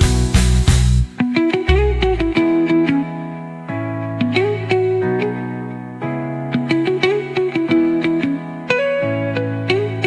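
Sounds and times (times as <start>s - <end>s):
plucked guitar notes: 0.0s - 10.0s.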